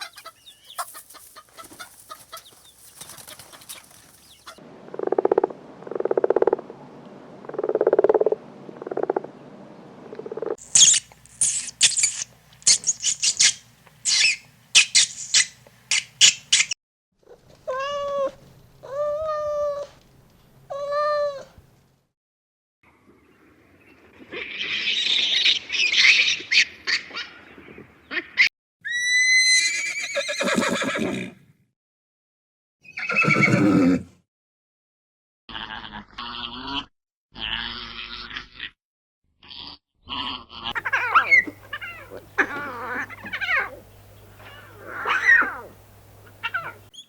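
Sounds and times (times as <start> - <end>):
short high chirps: 10.6 - 15.5
high wavering animal call: 10.6 - 16.7, 40.7 - 47.0
kitten meowing: 40.8 - 43.8, 44.4 - 45.8, 46.4 - 46.9.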